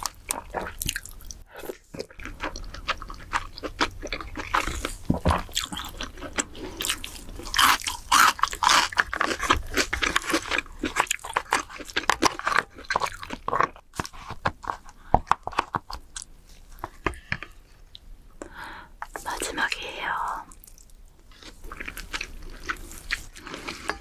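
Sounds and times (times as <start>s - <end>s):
crackling of crab shell: 0.0s - 17.5s
person crunching and chewing crab: 0.0s - 18.1s, 19.0s - 24.0s.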